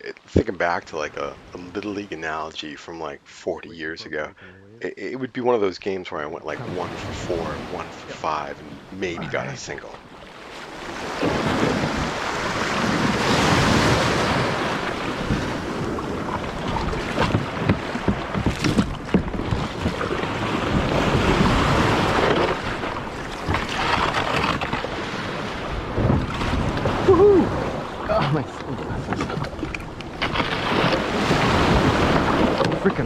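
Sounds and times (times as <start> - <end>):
ocean waves: 0.6 - 5.2, 6.4 - 33.0
wind buffeting microphone: 10.8 - 33.0.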